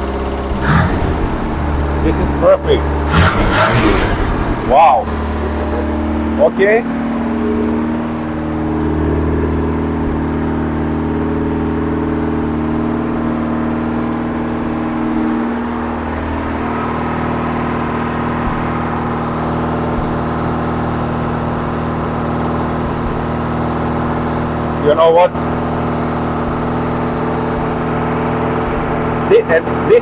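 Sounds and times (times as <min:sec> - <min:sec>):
car engine idling: 0:00.0 - 0:05.6.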